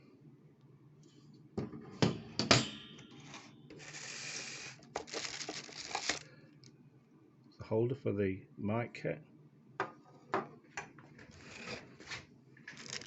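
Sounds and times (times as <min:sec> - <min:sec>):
scraping rustle: 0:11.3 - 0:13.0.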